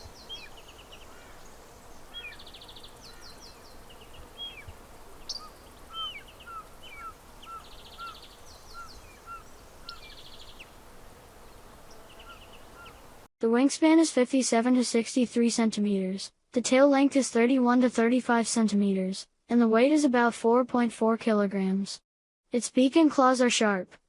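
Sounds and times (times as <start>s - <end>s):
small birds calling: 0.0s - 13.2s
outdoor background noise: 0.0s - 13.3s.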